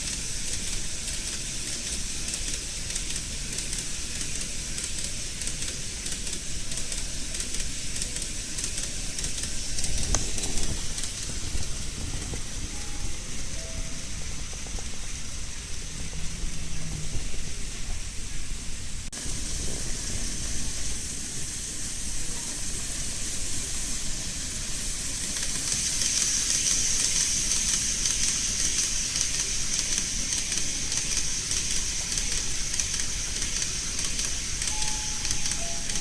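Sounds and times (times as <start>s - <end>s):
model train wheels hissing: 0.0s - 36.0s
wheels clicking over rail joints: 0.0s - 36.0s.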